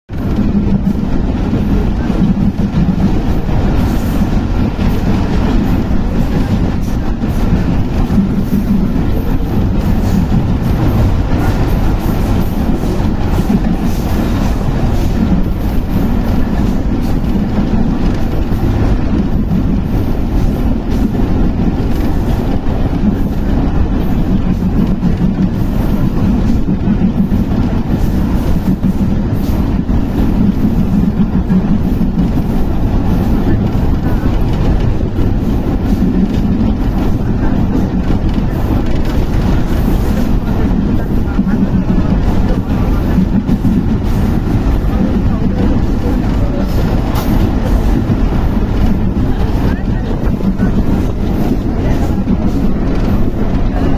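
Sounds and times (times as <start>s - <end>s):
train rumbling on rails: 0.0s - 53.9s.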